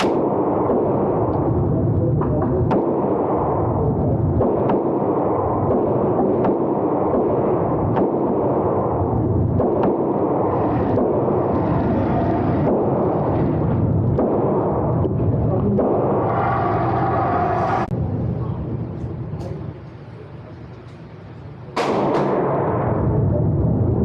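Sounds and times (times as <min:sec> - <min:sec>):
sharp single gunshots: 0:00.0 - 0:01.0, 0:21.8 - 0:22.9
loud steady rushing noise: 0:00.0 - 0:24.0.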